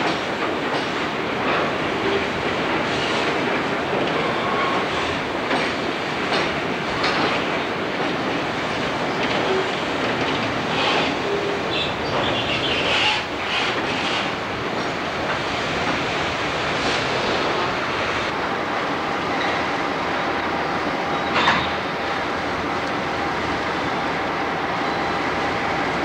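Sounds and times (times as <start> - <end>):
diesel locomotives running: 0.0 - 26.0
train wheel squeals: 4.1 - 5.2, 9.0 - 15.0, 19.3 - 22.0.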